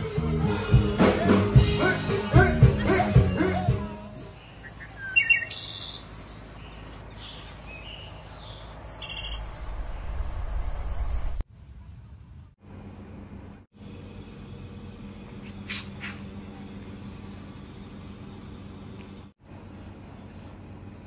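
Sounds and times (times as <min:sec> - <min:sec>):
music: 0:00.0 - 0:04.4
outdoor background hum: 0:01.6 - 0:21.0
birds chirping: 0:04.4 - 0:11.2.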